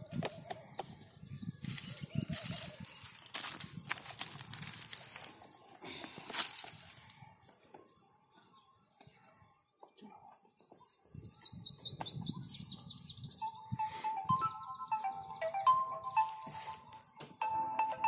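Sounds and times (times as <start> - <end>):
bird singing high chirps: 0.0 - 3.6, 7.2 - 18.0.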